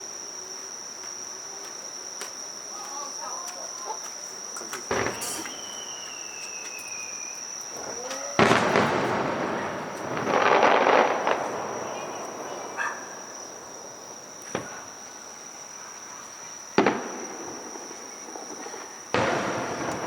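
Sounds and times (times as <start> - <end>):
insects trilling: 0.0 - 20.0
falling whistle: 4.9 - 13.3
faint voices: 7.7 - 13.8.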